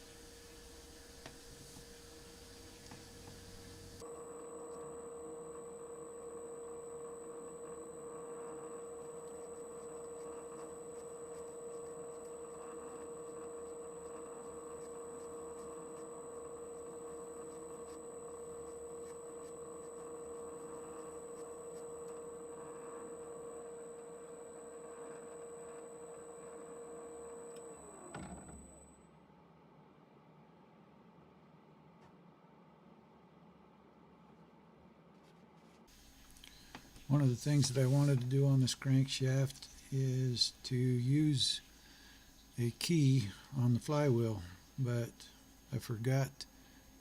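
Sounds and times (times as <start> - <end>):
metal lathe whining: 0.0 - 28.7
lathe spinning down: 0.0 - 28.8.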